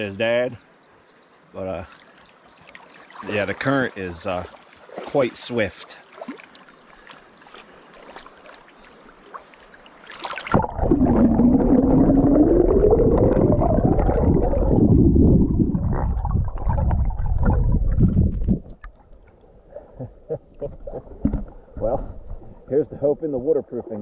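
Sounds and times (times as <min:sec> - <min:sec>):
splash into water: 0:03.0 - 0:12.0
muffled underwater rushing and gurgling: 0:09.8 - 0:20.0
hum rising and falling in pitch: 0:10.6 - 0:18.0.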